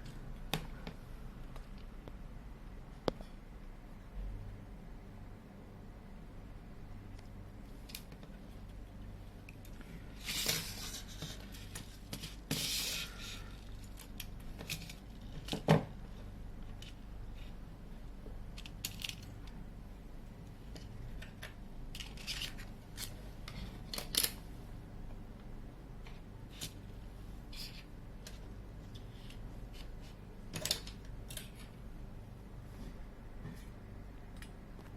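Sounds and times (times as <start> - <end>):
tools and phone parts handled: 9.5 - 15.9, 18.5 - 19.5, 20.7 - 24.4.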